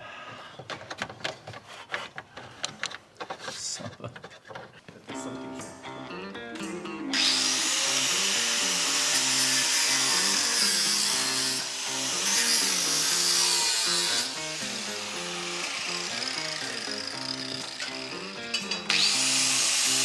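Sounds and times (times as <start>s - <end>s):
background music: 5.0s - 20.0s
power tool on metal pipe: 7.2s - 20.0s.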